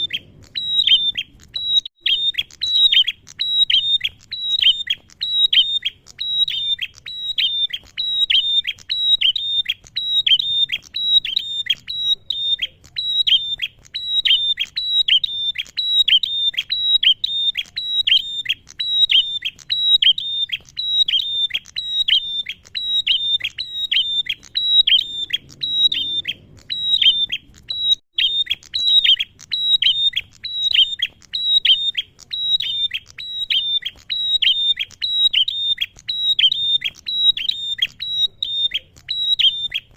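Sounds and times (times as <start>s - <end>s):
bird chirping rapidly: 0.0s - 39.9s.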